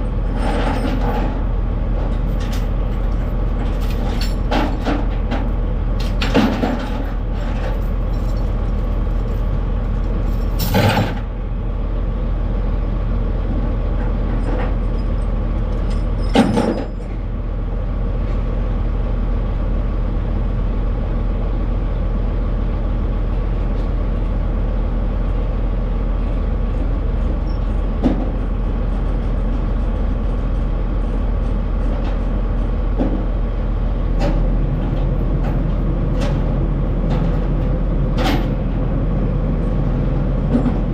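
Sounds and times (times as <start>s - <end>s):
truck clunks: 0.0s - 11.4s, 13.4s - 17.3s, 26.4s - 40.9s
truck diesel engine droning: 0.0s - 40.9s.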